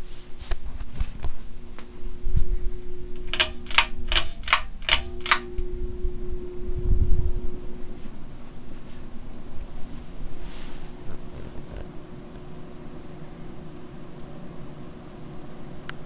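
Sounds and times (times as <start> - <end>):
ceiling fan motor humming: 0.0 - 16.0
sharp rattling clicks: 3.0 - 5.7.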